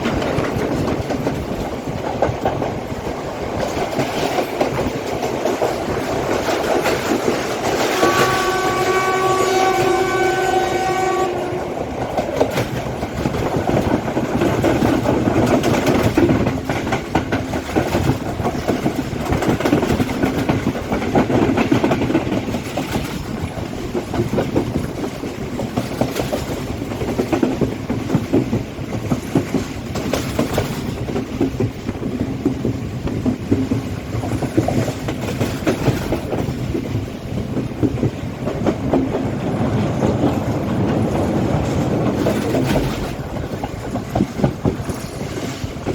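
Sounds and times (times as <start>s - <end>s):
train rumbling at speed: 0.0s - 45.9s
wheels clacking over rail joints: 0.0s - 45.9s.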